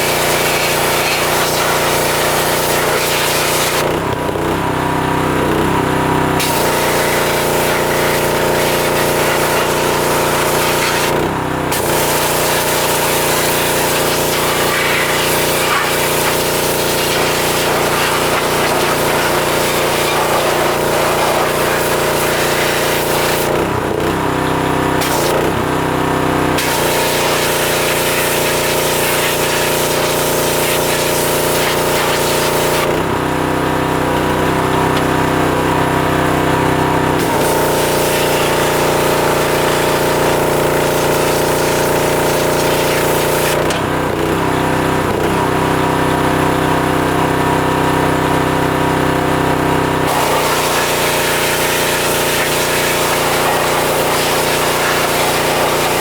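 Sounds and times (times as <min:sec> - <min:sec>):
water spray hissing: 0:00.0 - 0:03.8, 0:06.4 - 0:11.1, 0:11.8 - 0:23.5, 0:26.6 - 0:32.9, 0:37.2 - 0:43.6, 0:50.1 - 0:56.0
pressure washer engine running: 0:00.0 - 0:56.0.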